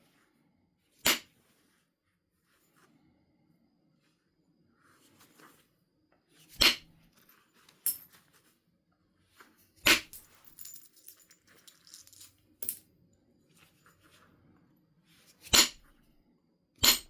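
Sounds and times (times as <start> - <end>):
sharp strikes on flint: 15.5 - 15.8.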